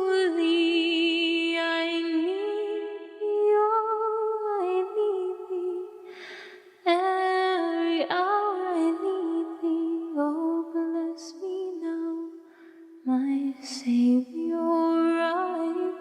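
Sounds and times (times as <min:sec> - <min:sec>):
woman singing a hymn: 0:00.0 - 0:06.0, 0:06.9 - 0:12.3, 0:13.1 - 0:16.0
singer breathing: 0:06.0 - 0:06.8, 0:12.4 - 0:13.0.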